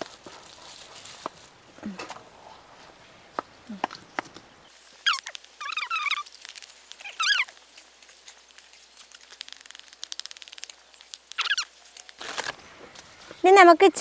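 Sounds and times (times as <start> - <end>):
bird warbling: 4.9 - 7.7, 8.7 - 12.2
faint rapid ticking: 8.0 - 11.7.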